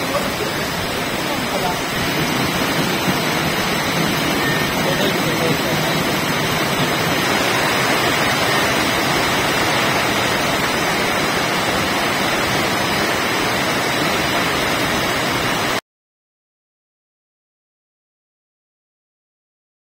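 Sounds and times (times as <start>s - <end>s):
heavy rain pouring: 0.0s - 15.8s.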